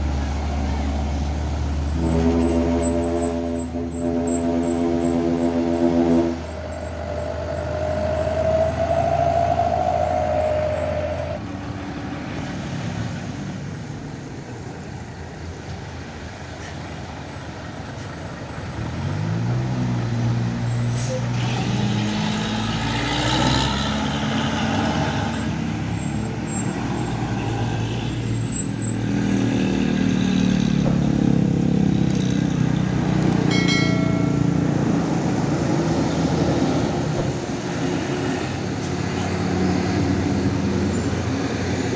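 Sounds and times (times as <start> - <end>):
diesel trucks shifting gears uphill: 0.0 - 41.9
horn blast: 1.9 - 7.2.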